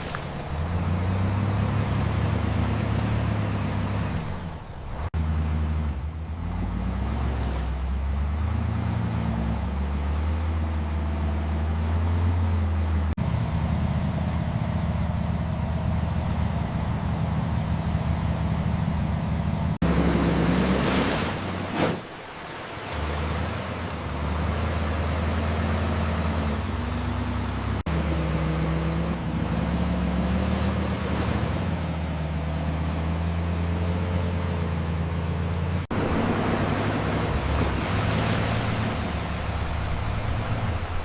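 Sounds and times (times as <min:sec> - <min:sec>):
dump truck diesel engines droning: 0:00.0 - 0:41.0.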